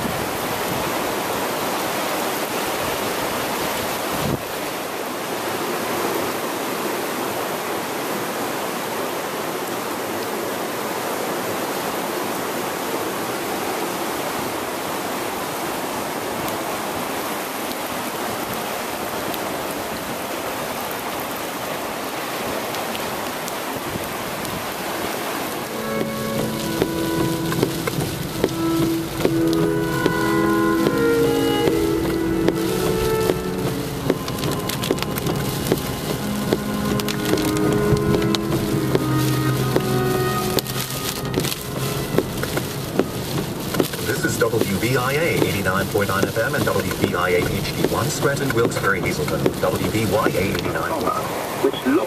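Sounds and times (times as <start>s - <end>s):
floodwater rushing in a creek: 0.0s - 52.0s.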